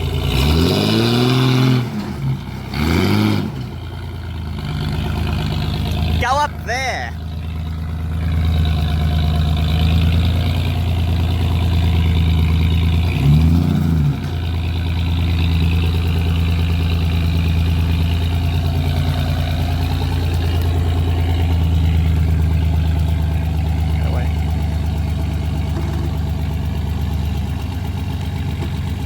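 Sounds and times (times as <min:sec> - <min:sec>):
vehicle engine idling with rev blip: 0:00.0 - 0:29.0.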